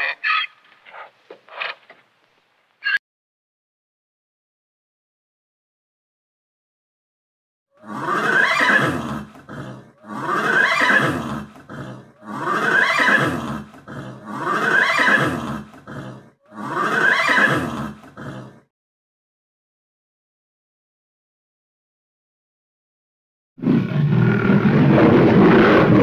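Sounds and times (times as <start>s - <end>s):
loud animal cry: 0.0s - 0.6s, 7.8s - 18.6s.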